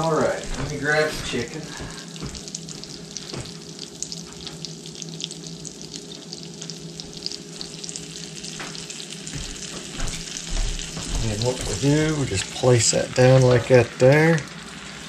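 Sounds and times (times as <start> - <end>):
oil and butter sizzling in skillet: 0.0 - 15.0.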